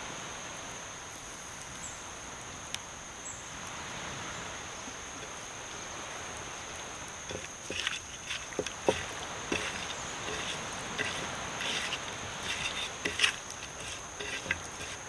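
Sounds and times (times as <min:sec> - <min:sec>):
high insect drone: 0:03.0 - 0:15.0.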